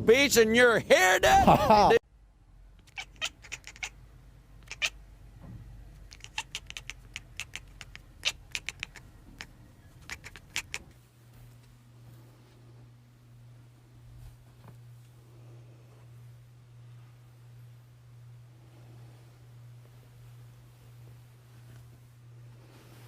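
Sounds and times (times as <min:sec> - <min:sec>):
faint low hum: 0:01.3 - 0:23.0
sharp irregular clicks: 0:06.1 - 0:10.9.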